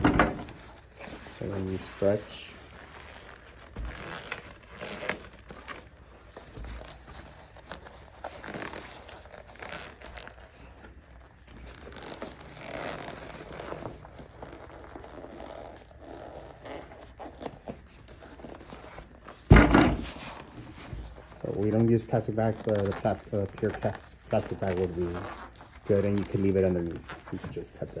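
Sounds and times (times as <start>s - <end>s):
material rustling and crinkling: 0.0s - 28.0s.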